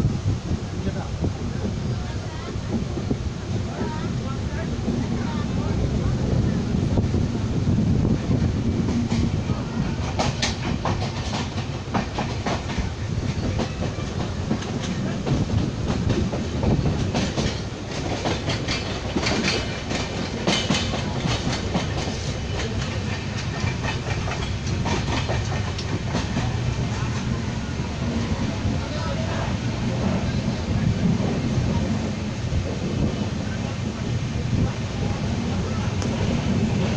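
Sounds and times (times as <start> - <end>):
train rumbling on track: 0.0 - 36.9
wheels clacking and rattling: 8.4 - 27.4.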